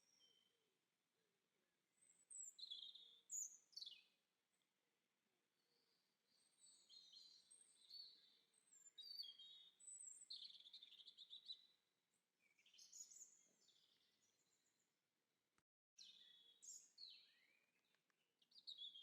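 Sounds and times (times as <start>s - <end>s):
songbird chirps and trills: 2.0s - 4.2s, 5.6s - 11.8s, 12.4s - 14.8s, 16.0s - 19.0s.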